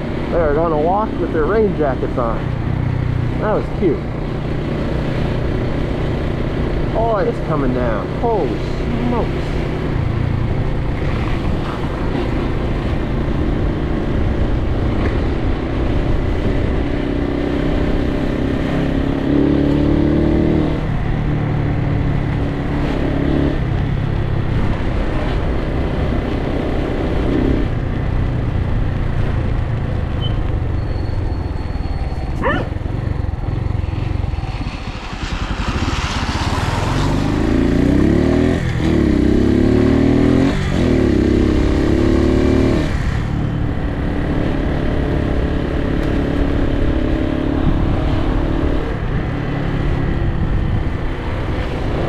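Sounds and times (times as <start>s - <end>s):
motorcycle engine running: 26.5s - 51.3s
wind and rain rushing: 32.7s - 40.7s.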